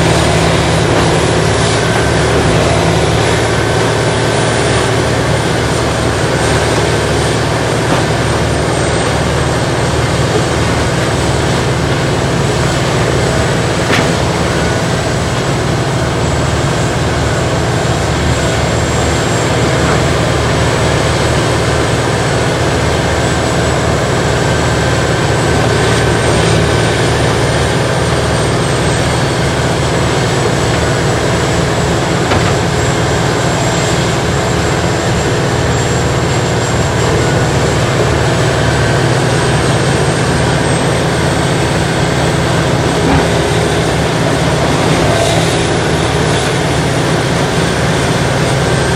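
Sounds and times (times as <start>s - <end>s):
grinder machine droning: 0.0s - 48.9s.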